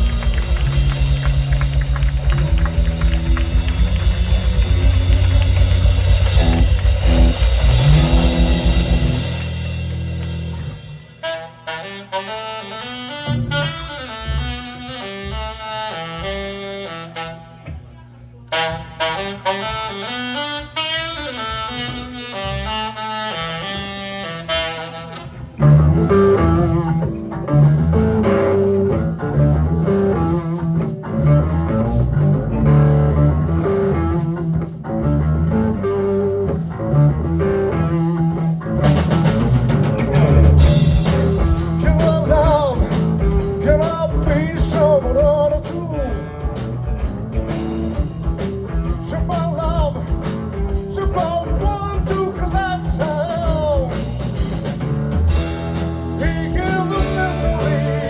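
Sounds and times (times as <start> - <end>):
lead line with sliding notes: 0.0 - 11.3
band playing rock-funk: 0.0 - 17.8, 18.5 - 58.0.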